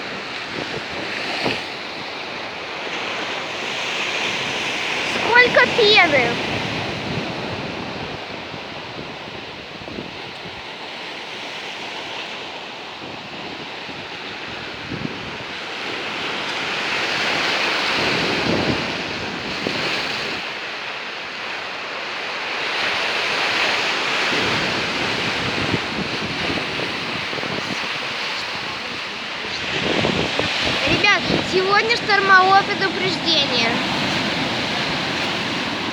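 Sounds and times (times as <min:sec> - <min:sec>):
wind buffeting microphone: 0:00.0 - 0:10.9, 0:13.0 - 0:20.5, 0:22.8 - 0:35.9
heavy waves breaking on shore: 0:00.0 - 0:35.9.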